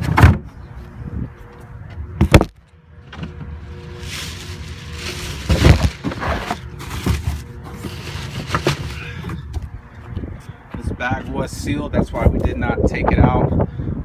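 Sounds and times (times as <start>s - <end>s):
rustling: 3.9s - 9.0s.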